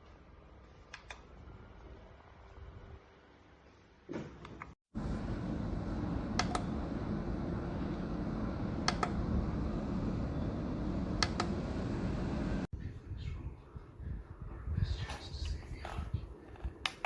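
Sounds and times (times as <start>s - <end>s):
desk fan airflow rushing: 4.9s - 12.7s.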